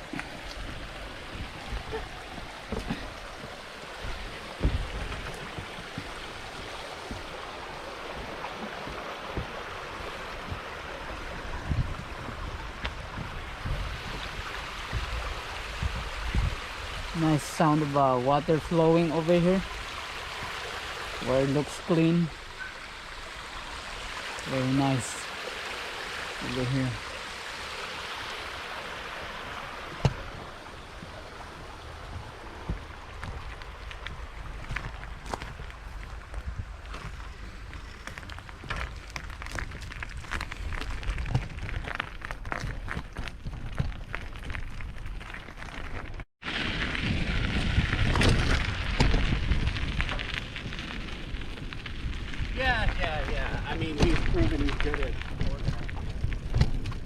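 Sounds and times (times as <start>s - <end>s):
creek water flowing: 0.0s - 42.3s
low thumps on microphone: 4.0s - 6.1s, 11.6s - 16.6s
soft thump: 30.0s - 30.2s.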